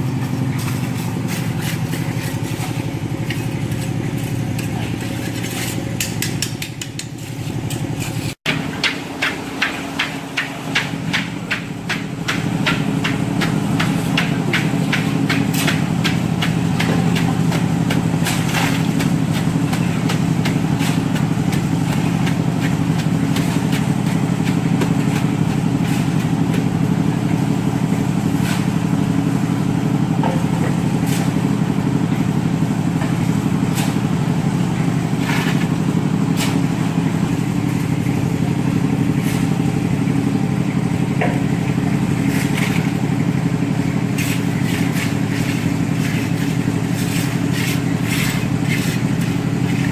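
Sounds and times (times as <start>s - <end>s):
engine running: 0.0s - 49.9s
sharp clicks and knocks: 5.9s - 7.9s.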